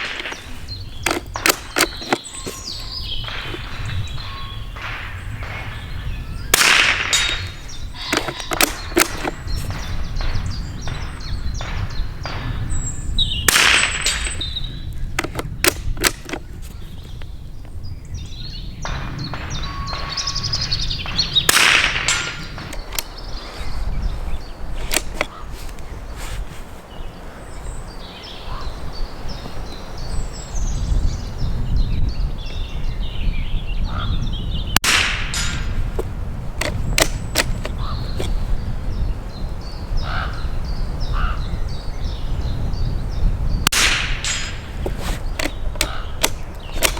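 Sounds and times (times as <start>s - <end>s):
sharp clicks and knocks: 0.0s - 5.8s, 6.5s - 12.8s, 13.5s - 16.8s, 18.9s - 23.4s, 24.8s - 25.8s, 34.8s - 38.4s, 43.7s - 46.9s
steady low rumble: 0.0s - 15.2s
rifle shots: 0.0s - 16.4s, 18.8s - 23.4s, 34.8s - 36.0s, 43.6s - 46.9s.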